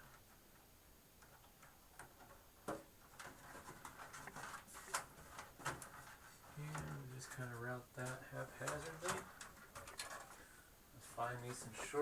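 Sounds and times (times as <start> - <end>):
hands handling computer parts: 1.3 - 10.5.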